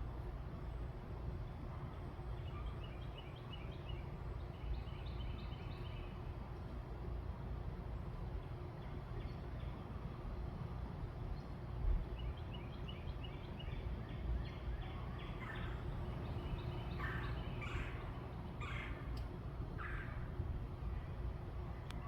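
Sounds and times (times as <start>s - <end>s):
low background rumble: 0.0s - 22.0s
birds calling: 14.5s - 20.4s
bird harsh calls: 15.2s - 20.3s.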